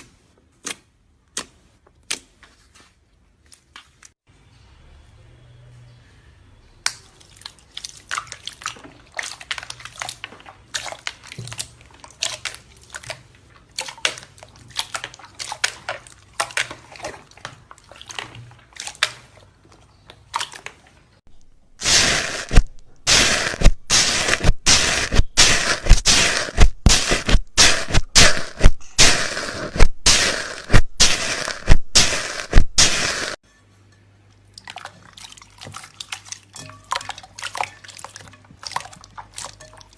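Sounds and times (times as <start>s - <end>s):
slime squeezed by hand: 21.8s - 33.4s.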